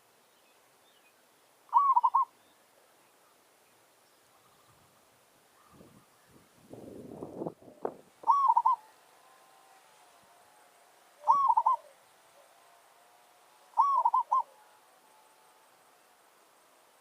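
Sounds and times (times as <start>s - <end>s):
dove rippling coos: 1.7s - 2.3s, 7.6s - 9.1s, 11.2s - 12.9s, 13.7s - 15.0s.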